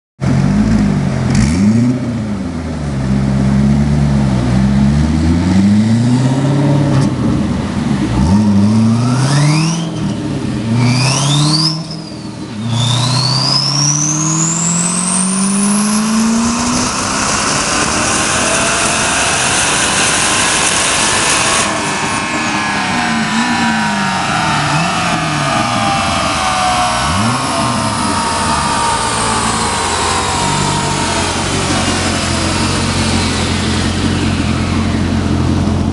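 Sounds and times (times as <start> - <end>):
car engine revving: 0.2 - 35.9
turbo whistle: 10.8 - 16.6.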